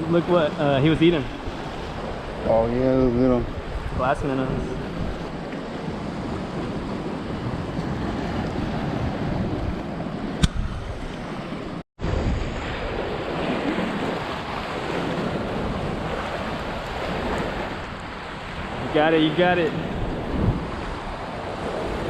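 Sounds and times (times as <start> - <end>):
surf washing against rocks: 0.0 - 22.0
wind buffeting microphone: 0.0 - 22.0
sharp click: 10.4 - 10.8.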